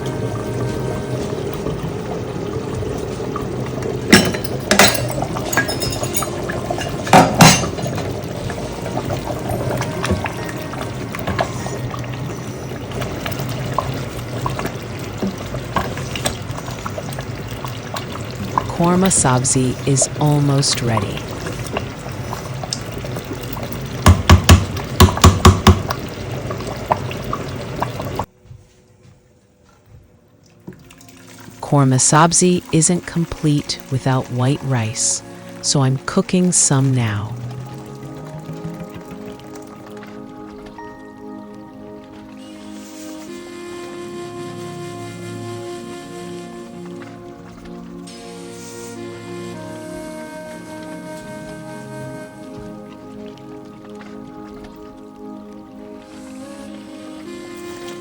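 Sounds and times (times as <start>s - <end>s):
stew bubbling in a pot: 0.0s - 28.3s, 30.4s - 58.0s
kitchenware clinking on cooking pot: 4.1s - 8.1s.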